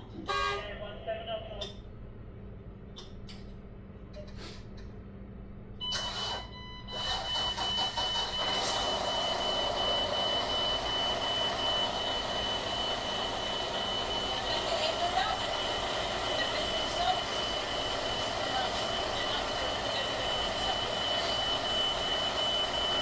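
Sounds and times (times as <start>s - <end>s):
high warning buzzer: 0.3s - 0.7s, 5.8s - 23.0s
diesel engine cranking and running: 5.9s - 13.8s.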